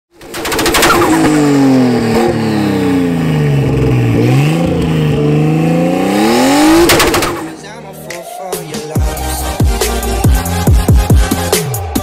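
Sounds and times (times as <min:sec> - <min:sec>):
exhaust pops: 0:00.2 - 0:05.3, 0:06.7 - 0:07.6
car engine revving: 0:00.2 - 0:11.1.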